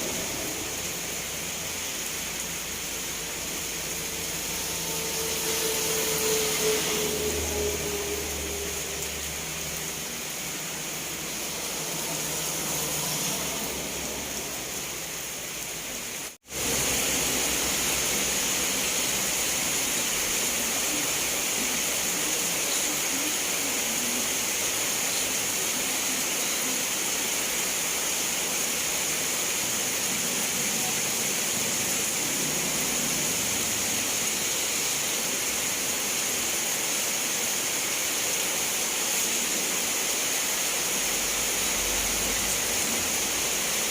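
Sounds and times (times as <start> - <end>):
low hum: 0.0 - 15.2
steady rain hiss: 0.0 - 43.9.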